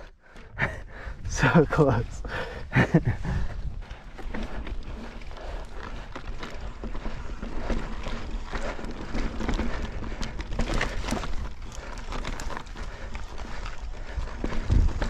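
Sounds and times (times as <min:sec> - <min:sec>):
wind buffeting microphone: 0:00.0 - 0:15.0
tyres rumbling on rock: 0:00.6 - 0:15.0
bike knocks and rattles: 0:02.8 - 0:15.0.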